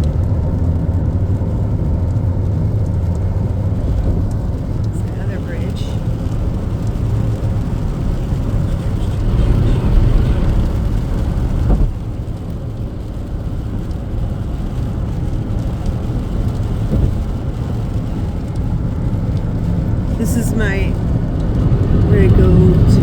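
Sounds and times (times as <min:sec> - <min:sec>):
road and engine rumble: 0:00.0 - 0:23.0.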